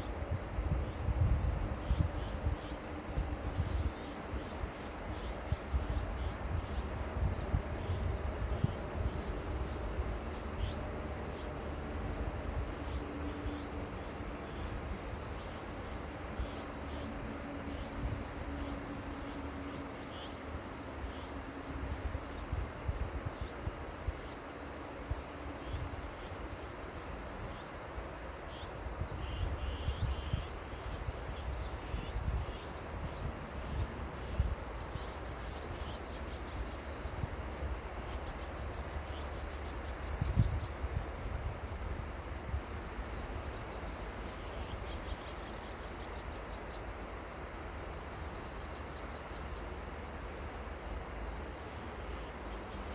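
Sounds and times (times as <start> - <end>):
wind buffeting microphone: 0.1 - 16.6, 29.0 - 36.0, 36.6 - 44.0
river water flowing: 41.6 - 52.9.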